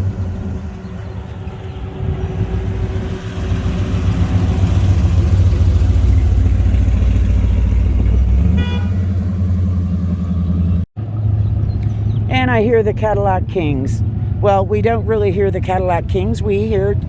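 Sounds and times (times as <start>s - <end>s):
car engine driving past: 0.0s - 12.3s.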